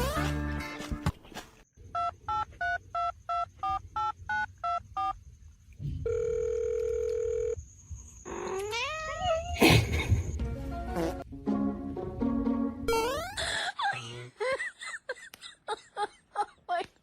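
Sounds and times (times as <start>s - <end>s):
steady dial tone: 6.0s - 7.6s.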